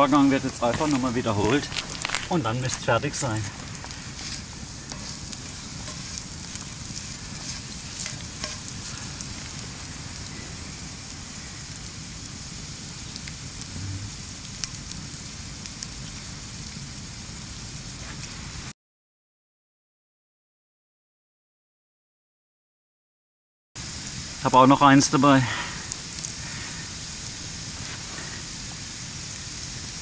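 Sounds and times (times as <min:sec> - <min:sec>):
lard sizzling in a pan: 0:00.0 - 0:18.7, 0:23.8 - 0:30.0
small pops and crackles: 0:00.1 - 0:12.0, 0:13.1 - 0:15.0, 0:25.8 - 0:29.6.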